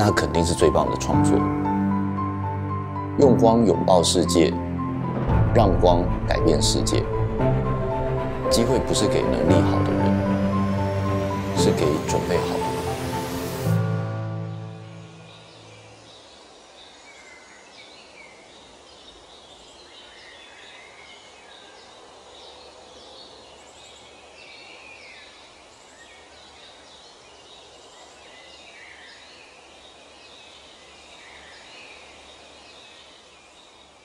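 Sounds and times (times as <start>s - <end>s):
background hiss: 8.2s - 34.0s.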